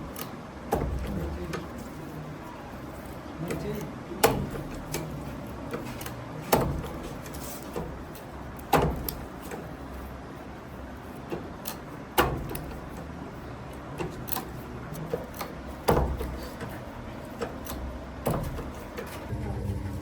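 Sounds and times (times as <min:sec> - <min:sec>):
low background hum: 0:00.0 - 0:20.0
machine hum: 0:19.1 - 0:20.0.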